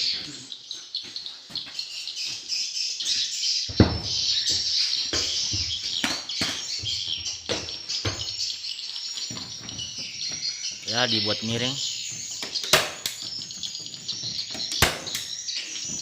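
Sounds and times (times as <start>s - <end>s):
swiftlets twittering: 4.0s - 16.0s.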